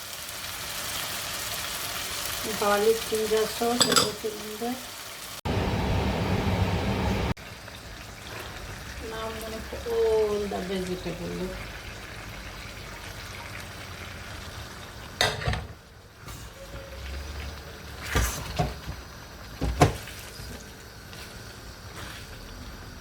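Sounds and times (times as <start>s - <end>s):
food sizzling in a pan: 0.0s - 6.0s, 7.2s - 23.0s
cookware knocks: 3.8s - 4.2s.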